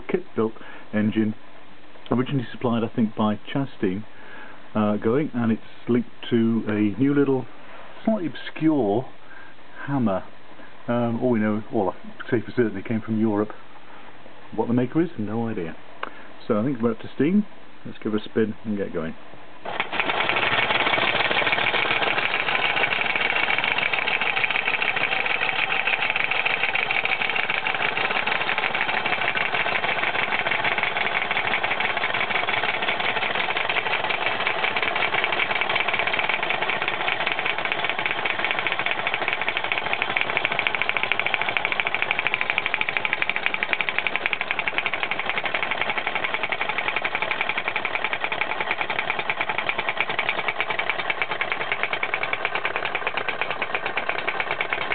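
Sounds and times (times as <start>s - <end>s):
model steam engine running: 19.7s - 54.9s.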